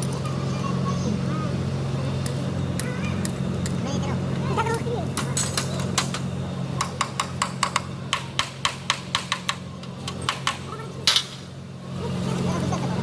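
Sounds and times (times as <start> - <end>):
steady low hum: 0.0 - 13.0
hammer tapping metal parts: 6.8 - 11.4.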